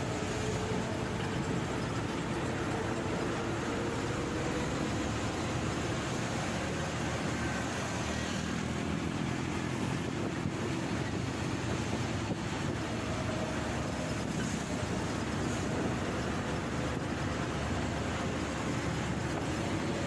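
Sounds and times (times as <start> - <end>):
road noise: 0.0 - 20.0
wind rush over microphone: 0.0 - 20.0.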